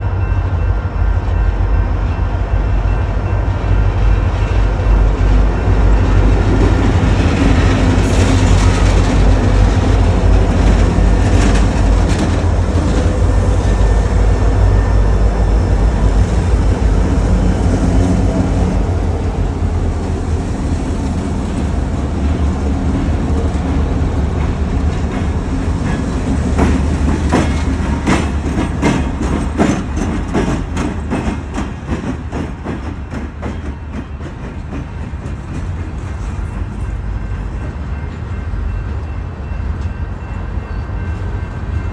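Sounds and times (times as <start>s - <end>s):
diesel locomotive engine rumble: 0.0s - 41.9s
wheels clicking over rail joints: 22.6s - 36.9s.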